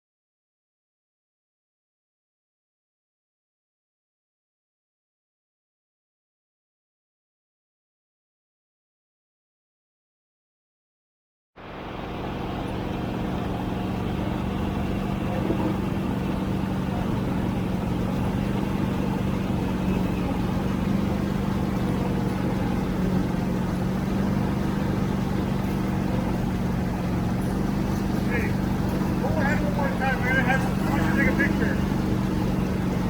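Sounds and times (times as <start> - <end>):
tractor engine running: 11.6 - 33.0.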